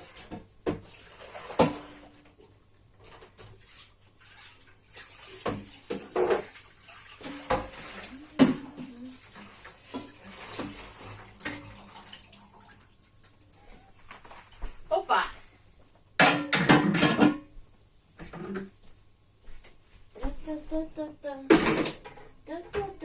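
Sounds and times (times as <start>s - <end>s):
water splashing in a sink: 0.0s - 2.5s, 3.2s - 13.5s
household items clattering: 5.4s - 6.6s, 16.2s - 17.5s, 21.5s - 22.4s.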